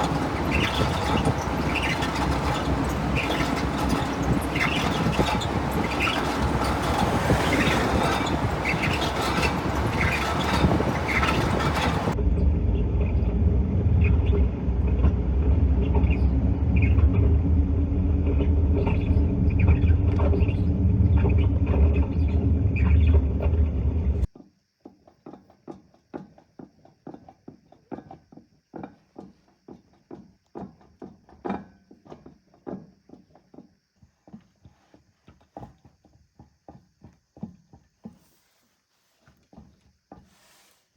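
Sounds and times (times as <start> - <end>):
road and tyre noise: 0.0 - 24.4
low humming drone: 10.4 - 24.3.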